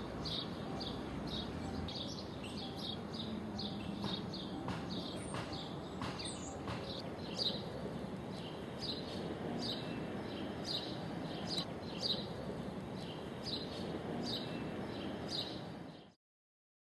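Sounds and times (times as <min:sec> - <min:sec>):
outdoor background noise: 0:00.0 - 0:16.2.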